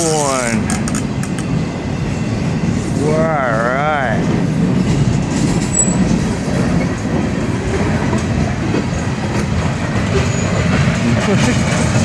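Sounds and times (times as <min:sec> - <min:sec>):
steel wheels rumbling on rails: 0:00.0 - 0:12.0
wheel squeal: 0:05.7 - 0:06.1, 0:10.2 - 0:10.6.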